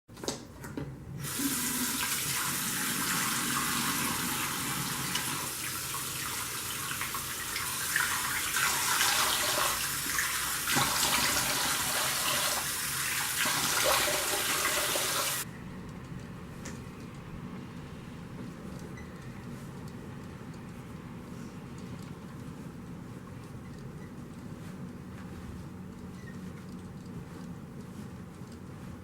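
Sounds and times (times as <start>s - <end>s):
splashing water: 1.4s - 15.4s.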